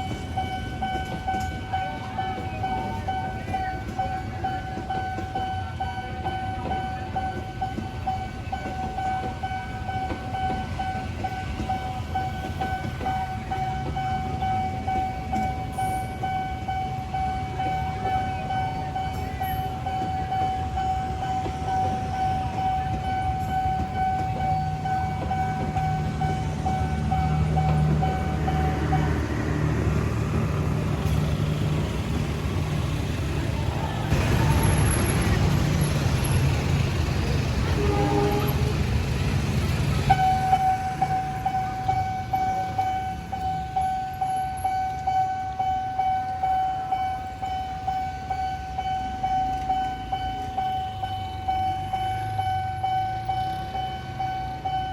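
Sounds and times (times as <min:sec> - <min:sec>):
level crossing alarm tone: 0:00.0 - 0:30.8, 0:39.6 - 0:54.9
train rumbling: 0:00.0 - 0:54.9
train horn toot: 0:37.7 - 0:38.9.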